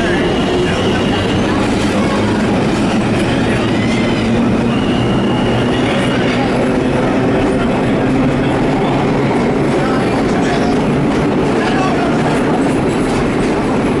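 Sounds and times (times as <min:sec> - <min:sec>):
faint wheel squeal: 0:00.0 - 0:07.0
subway cars rumbling on track: 0:00.0 - 0:14.0.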